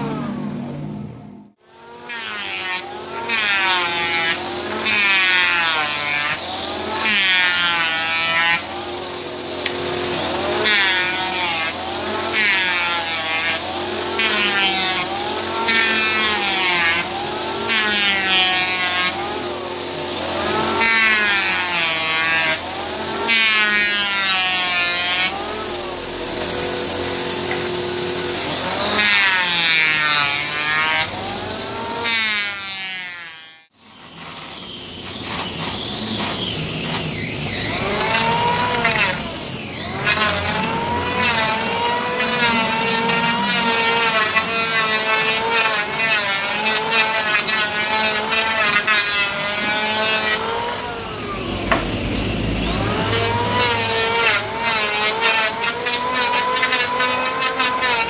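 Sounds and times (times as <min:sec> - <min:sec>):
power tool motor whine: 0:02.8 - 0:58.0.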